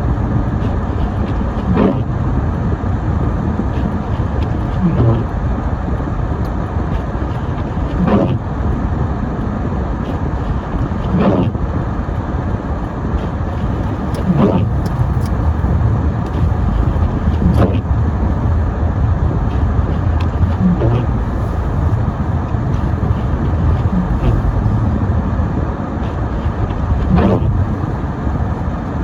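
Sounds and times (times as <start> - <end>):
road and engine rumble: 0.0 - 29.0
windshield wipers squeaking: 10.1 - 11.6, 13.2 - 18.6, 19.2 - 25.2, 26.0 - 29.0.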